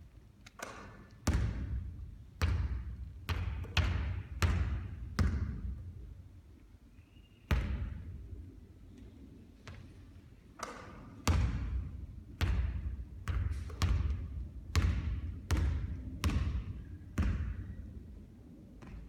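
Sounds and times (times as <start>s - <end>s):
basketball bouncing on court: 0.6s - 6.0s, 7.5s - 8.3s, 9.6s - 10.0s, 10.6s - 18.0s, 18.8s - 19.0s.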